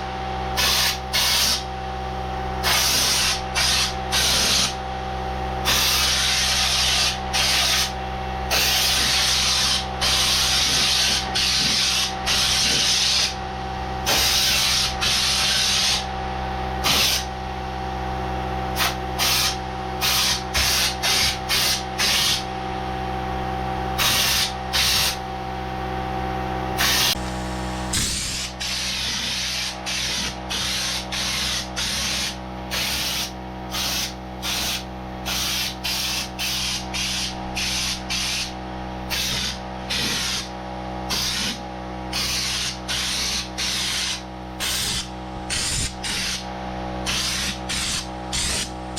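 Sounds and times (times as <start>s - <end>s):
steady machine hum: 0.0s - 48.9s
spray gun hissing bursts: 0.6s - 1.6s, 2.6s - 4.8s, 5.6s - 13.4s, 14.1s - 16.1s, 16.8s - 17.3s, 18.8s - 22.5s, 24.0s - 25.2s, 26.8s - 40.5s, 41.1s - 46.4s, 47.0s - 48.7s.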